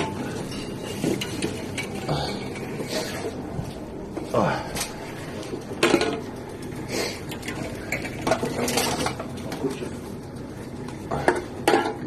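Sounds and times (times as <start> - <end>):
bottles and cans clinking: 11.2 - 12.0.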